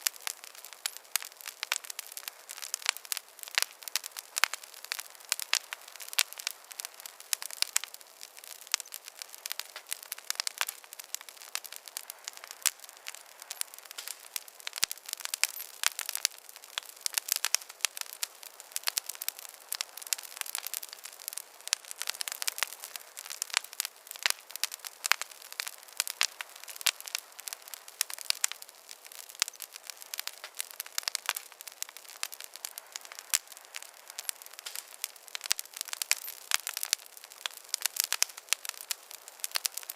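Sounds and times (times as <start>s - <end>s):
campfire crackling and popping: 0.0s - 39.9s
soft fire hiss: 0.0s - 39.9s.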